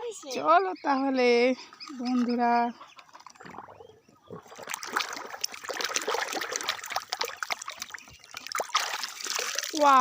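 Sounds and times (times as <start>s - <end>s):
water running and splashing: 3.0s - 10.0s.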